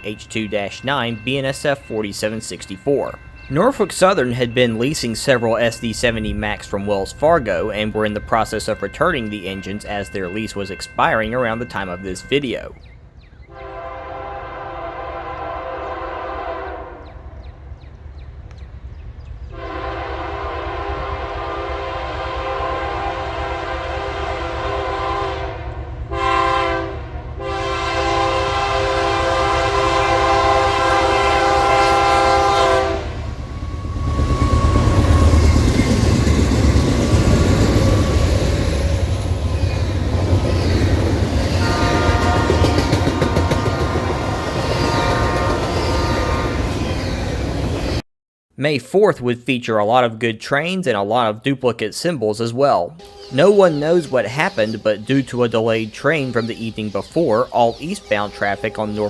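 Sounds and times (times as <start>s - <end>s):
locomotive engine rumble: 0.0s - 48.0s
locomotive air horn: 13.5s - 17.2s, 19.5s - 35.6s, 41.6s - 46.7s, 53.0s - 54.9s
wheels clattering on rail: 33.1s - 47.9s.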